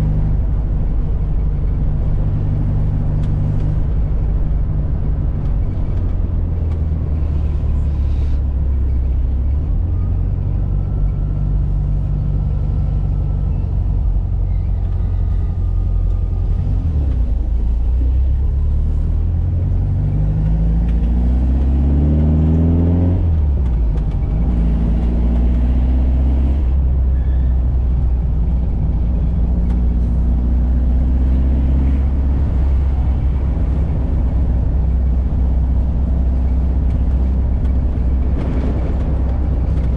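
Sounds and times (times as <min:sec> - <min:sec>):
car engine revving and shifting gear: 0:14.8 - 0:26.8, 0:28.4 - 0:39.9.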